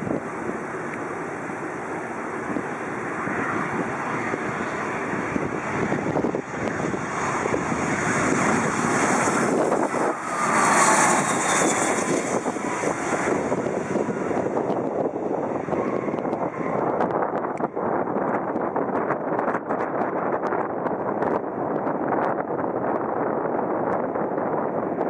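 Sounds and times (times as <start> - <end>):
airliner jet passing low: 0.0 - 25.0.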